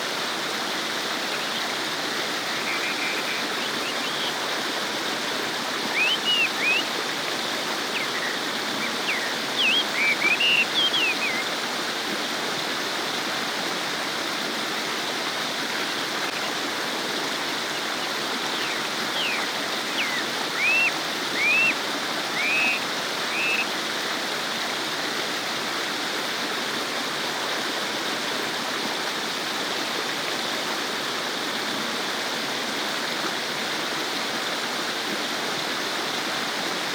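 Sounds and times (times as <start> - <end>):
stream babbling: 0.0 - 36.9
bird chirping: 5.9 - 6.9, 7.9 - 11.4, 18.0 - 23.7.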